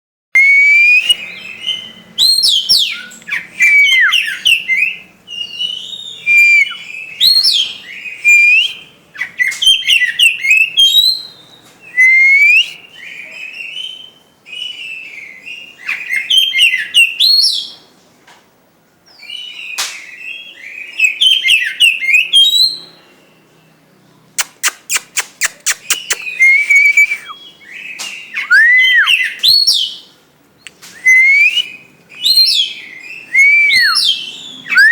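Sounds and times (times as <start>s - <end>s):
bird singing whistled phrases: 0.4s - 17.7s, 19.2s - 22.9s, 24.4s - 34.9s
bird sharp clicking notes: 24.4s - 26.4s.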